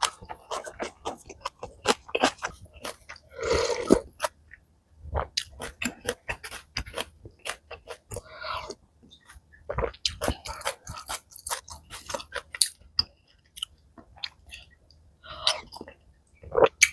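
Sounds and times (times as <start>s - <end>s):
crunchy chewing close up: 0.0s - 4.4s.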